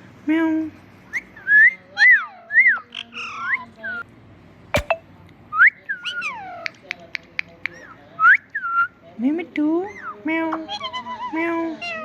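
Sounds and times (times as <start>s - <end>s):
sharp click: 4.8s - 5.0s.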